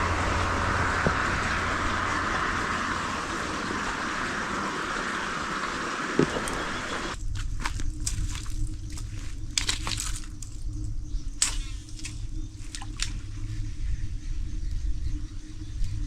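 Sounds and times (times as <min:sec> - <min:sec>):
steady low rumble: 0:00.0 - 0:16.0
footsteps crunching dry leaves: 0:06.1 - 0:10.8.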